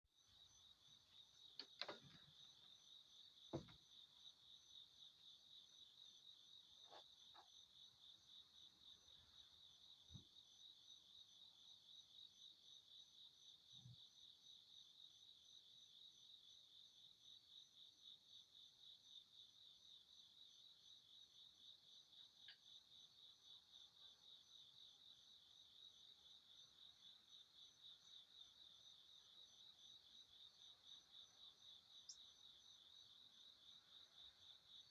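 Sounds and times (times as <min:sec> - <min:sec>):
soft knocks: 0:03.5 - 0:03.8.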